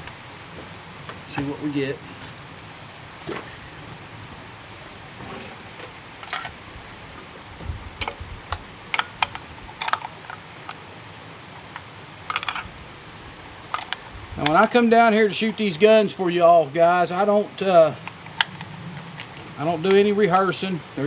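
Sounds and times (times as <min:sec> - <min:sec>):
rifle bolt and cartridges clicking: 0:08.0 - 0:10.9, 0:11.6 - 0:12.7, 0:13.6 - 0:14.8, 0:18.0 - 0:20.6.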